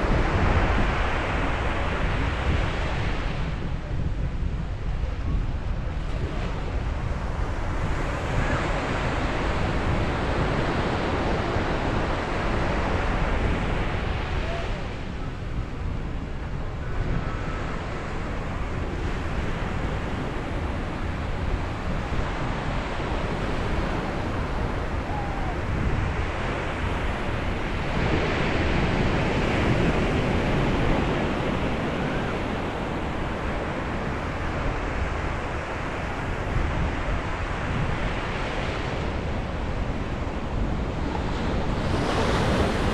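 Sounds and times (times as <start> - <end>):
wind on microphone: 0.0 - 42.9
sea surf breaking: 17.0 - 42.9.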